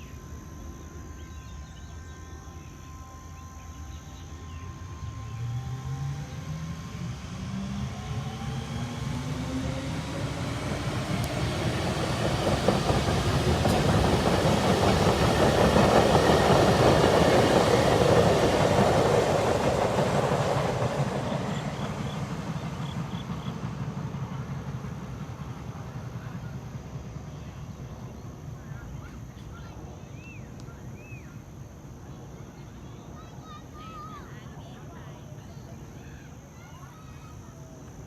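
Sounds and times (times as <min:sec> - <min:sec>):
traction motor whine: 0:00.0 - 0:29.4
train running noise: 0:00.0 - 0:38.0.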